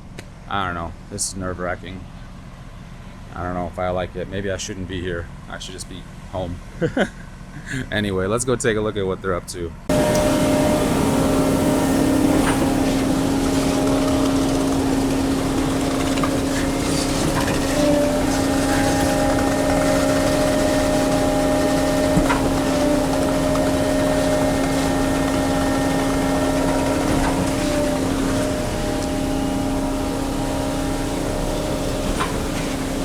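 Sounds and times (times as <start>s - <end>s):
machine engine humming: 9.9s - 33.0s.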